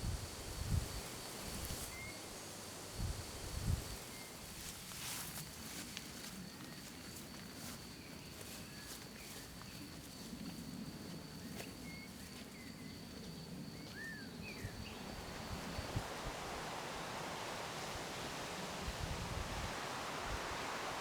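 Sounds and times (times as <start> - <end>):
high-pitched insect trill: 0.0 - 5.4, 11.5 - 21.0.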